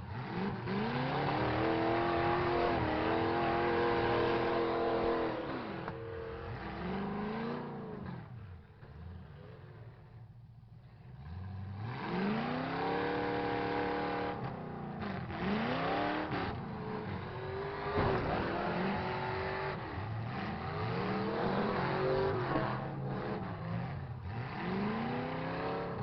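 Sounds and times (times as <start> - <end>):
truck engines revving: 0.0 - 26.0
sharp bang: 17.8 - 19.7.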